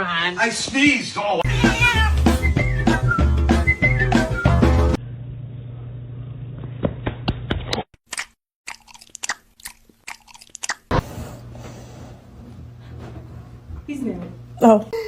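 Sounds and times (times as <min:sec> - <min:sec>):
animal chewing crunchy food: 0:08.1 - 0:10.9.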